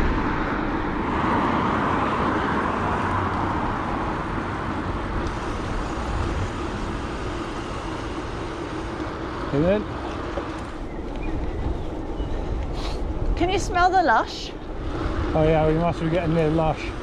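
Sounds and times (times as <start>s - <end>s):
passing traffic: 0.0s - 17.0s
wind on camera: 10.1s - 13.8s.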